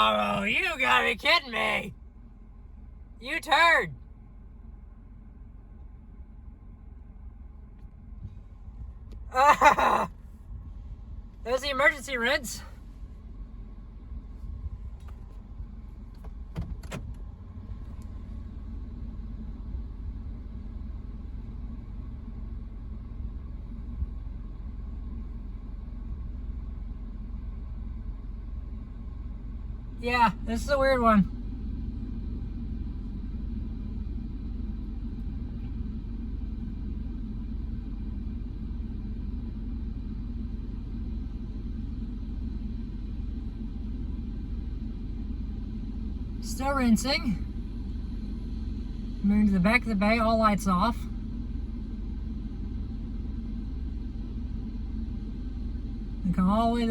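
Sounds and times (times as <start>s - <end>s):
low mechanical rumble: 0.0s - 56.9s.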